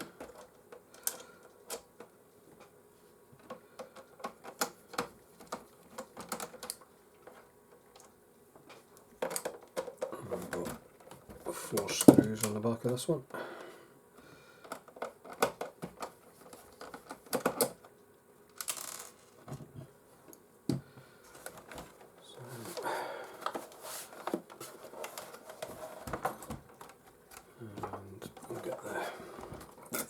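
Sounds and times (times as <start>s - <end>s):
plastic casing clicks and clatter: 9.2s - 11.2s, 14.7s - 17.9s.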